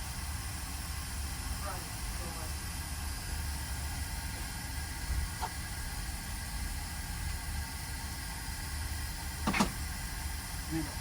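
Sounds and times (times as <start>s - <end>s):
fan hiss and hum: 0.0s - 11.0s
sharp knock: 9.5s - 9.8s.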